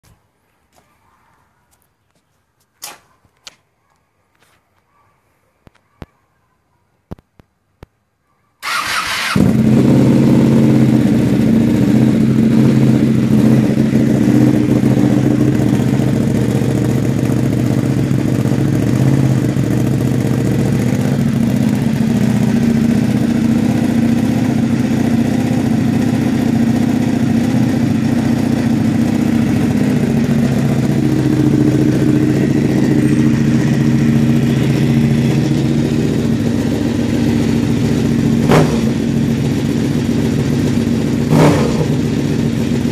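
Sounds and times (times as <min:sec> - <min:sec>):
motorcycle starter cranking: 0:08.6 - 0:09.6
motorcycle engine idling loud: 0:08.8 - 0:42.9.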